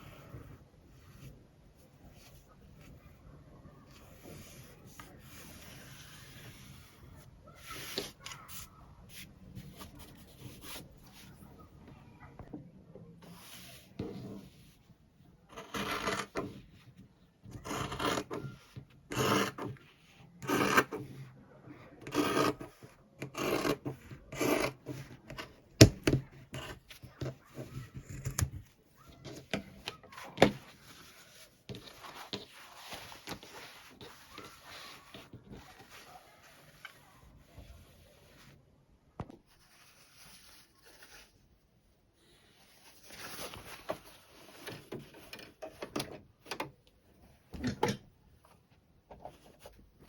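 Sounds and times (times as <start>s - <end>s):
quiet fabric rustling: 28.6s - 45.3s.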